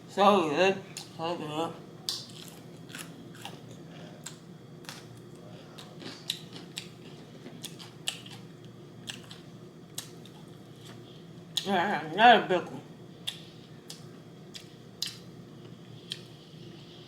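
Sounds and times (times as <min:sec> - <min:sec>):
person chewing food: 0:02.0 - 0:11.1, 0:13.2 - 0:16.8.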